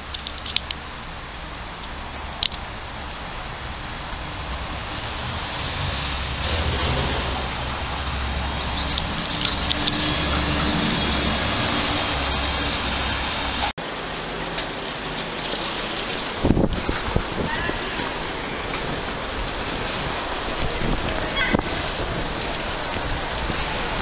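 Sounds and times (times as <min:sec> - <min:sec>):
outdoor background rush: 0:00.0 - 0:24.0
birds chirping: 0:08.4 - 0:11.6.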